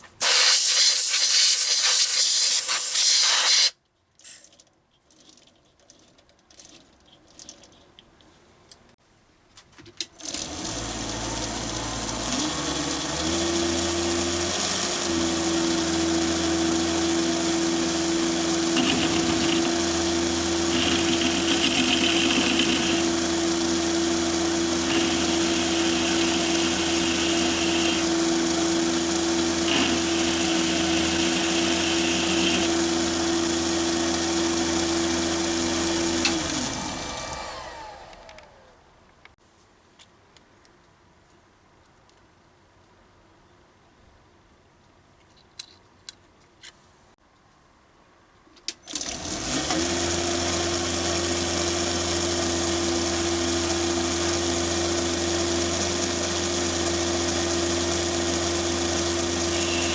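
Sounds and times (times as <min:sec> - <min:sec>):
higher hiss: 0:00.2 - 0:03.7
lathe motor whining: 0:10.2 - 0:38.8, 0:49.0 - 0:59.9.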